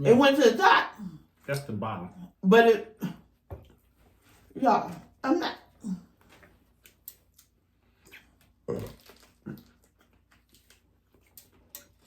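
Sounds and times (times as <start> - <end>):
chewing and crunching: 6.7 - 12.0
low mouth noises: 8.0 - 9.9.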